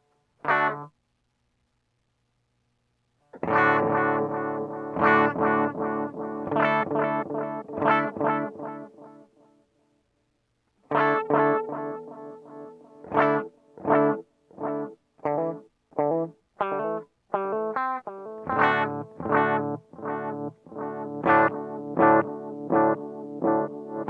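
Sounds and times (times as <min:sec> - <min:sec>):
distorted electric guitar chords: 0:03.4 - 0:09.2, 0:10.9 - 0:24.0.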